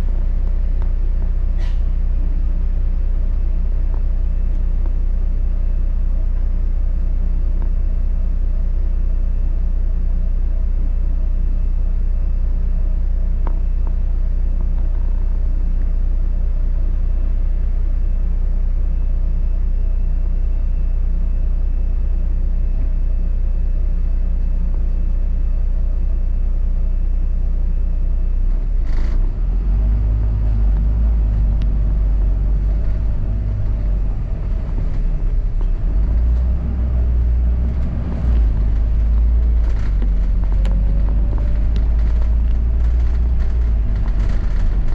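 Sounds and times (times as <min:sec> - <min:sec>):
bus engine and road rumble: 0:00.0 - 0:44.9.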